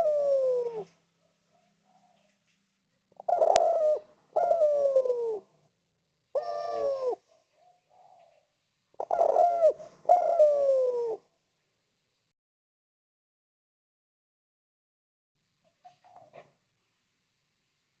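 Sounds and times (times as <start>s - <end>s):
dove cooing: 0.0s - 2.4s, 3.1s - 5.6s, 6.3s - 11.3s, 15.7s - 16.5s.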